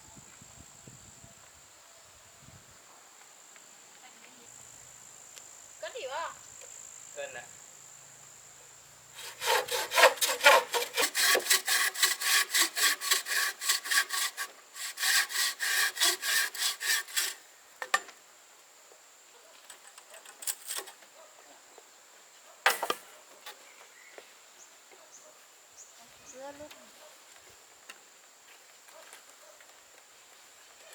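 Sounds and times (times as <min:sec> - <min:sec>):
hand saw cutting wood: 0:09.2 - 0:17.4.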